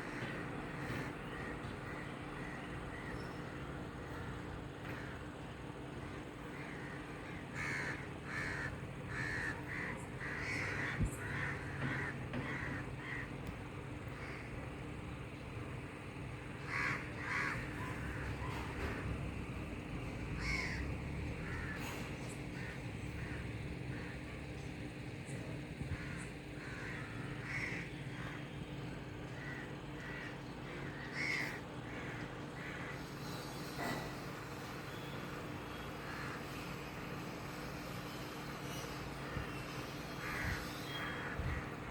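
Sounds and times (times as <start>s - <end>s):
birds calling: 0.0s - 41.9s
steady low hum: 0.0s - 41.9s
bird calling: 25.2s - 36.6s.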